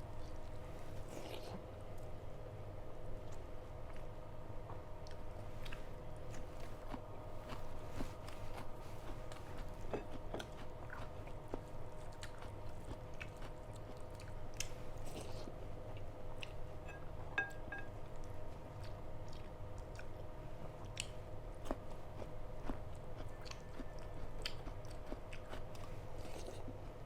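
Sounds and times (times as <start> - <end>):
faint hum: 0.0 - 27.0
person chewing and biting food: 5.0 - 16.6, 20.8 - 27.0.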